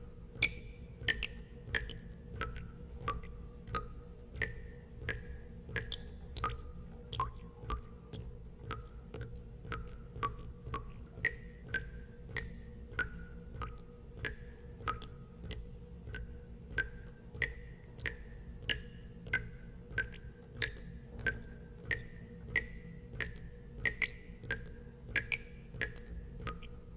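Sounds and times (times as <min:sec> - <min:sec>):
water drops plinking into water: 0:00.4 - 0:26.9.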